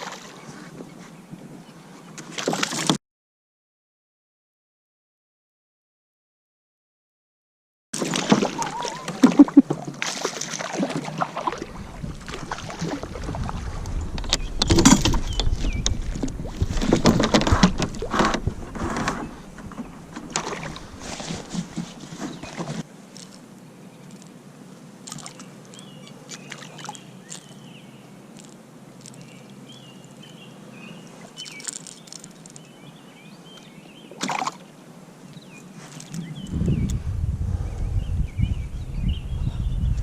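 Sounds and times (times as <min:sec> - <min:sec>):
water splashing: 0:08.0 - 0:19.3, 0:20.2 - 0:23.4, 0:25.0 - 0:25.5, 0:34.1 - 0:34.7.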